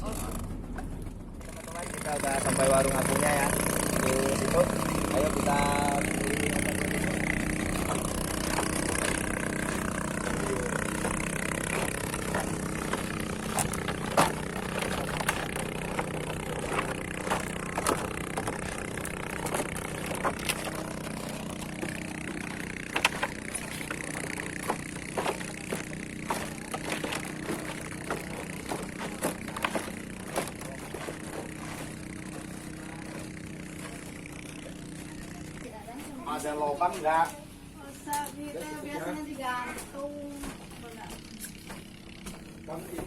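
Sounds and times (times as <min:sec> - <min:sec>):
outboard motor idling: 0:00.0 - 0:43.0
scattered knocks and clicks: 0:06.0 - 0:34.9.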